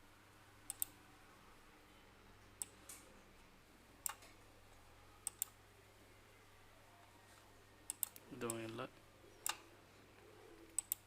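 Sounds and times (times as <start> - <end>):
faint low hum: 0.0 - 11.0
computer mouse clicks: 0.7 - 1.0, 4.0 - 4.4, 5.2 - 5.6, 7.9 - 8.8, 10.6 - 11.0.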